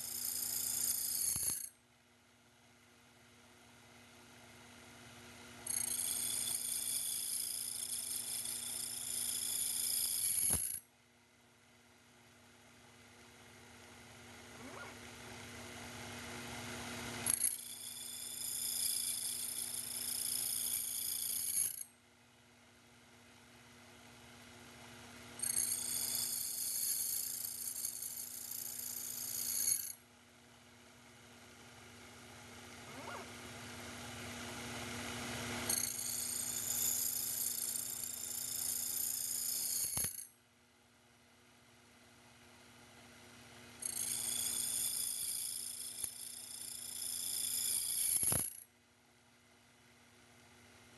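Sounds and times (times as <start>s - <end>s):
saw high-pitched ringing whine: 0.0s - 1.8s, 5.6s - 10.8s, 17.2s - 21.9s, 25.4s - 30.0s, 35.6s - 40.4s, 43.8s - 48.7s
mill motor hum: 32.7s - 33.5s.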